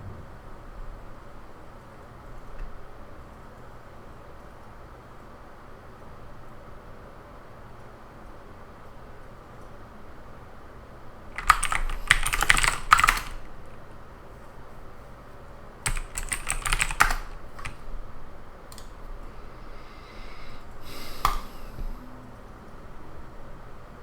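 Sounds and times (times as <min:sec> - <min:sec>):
typing on computer keyboard: 0:11.4 - 0:13.7, 0:15.8 - 0:17.8
single clicks: 0:21.2 - 0:21.5.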